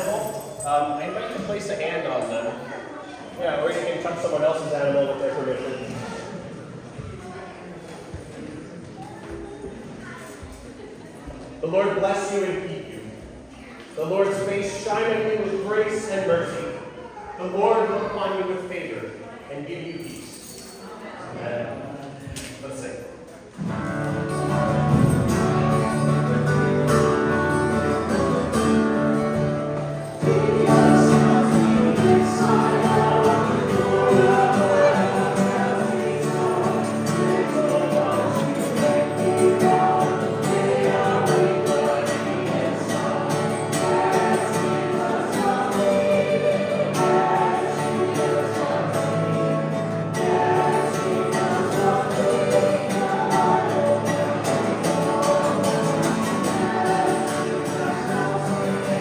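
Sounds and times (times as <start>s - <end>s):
congregation singing a hymn: 23.6s - 59.0s.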